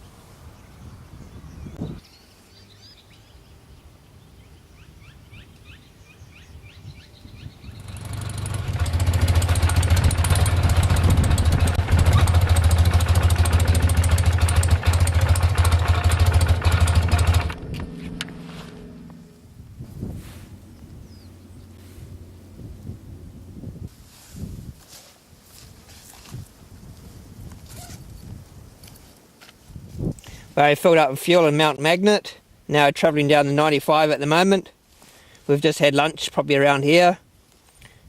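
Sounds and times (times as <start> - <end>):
birds chirping: 0.6 - 8.5, 20.5 - 23.5
motorcycle engine running: 7.6 - 23.9.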